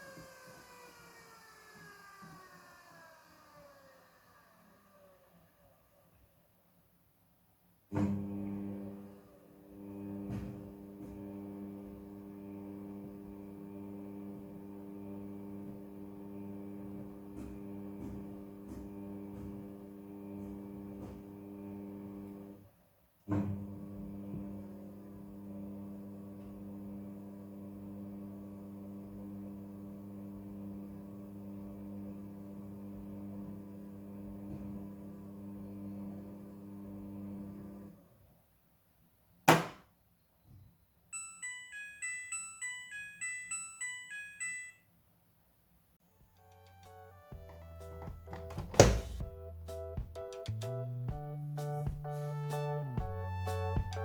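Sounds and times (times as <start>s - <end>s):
washing machine hum: 7.9s - 38.2s, 47.3s - 50.2s.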